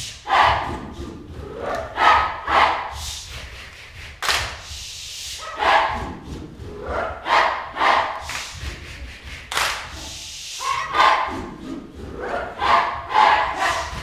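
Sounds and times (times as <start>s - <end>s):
dog barking: 2.0s - 2.8s, 7.2s - 8.2s, 10.7s - 11.4s.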